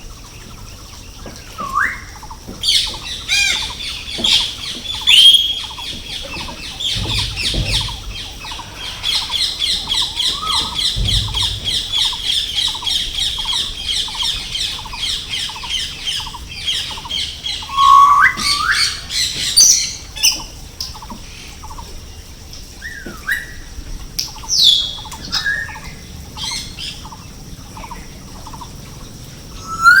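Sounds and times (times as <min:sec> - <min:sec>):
birds chirping: 0:00.0 - 0:30.0
sharp sweeping bird calls: 0:00.2 - 0:20.4, 0:29.5 - 0:30.0.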